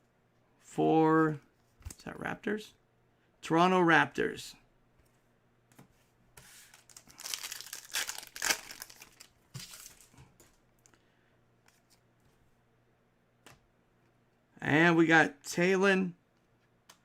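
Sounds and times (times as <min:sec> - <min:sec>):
plastic wrapper crinkling and tearing: 0:06.7 - 0:10.2.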